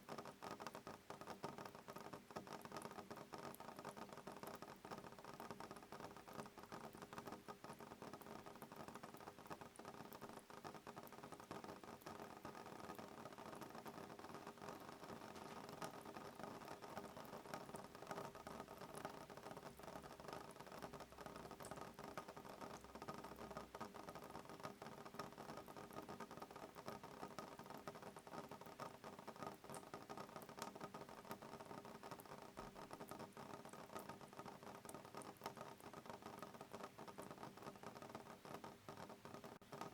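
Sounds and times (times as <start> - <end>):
rain pattering on a window: 0.0 - 39.9.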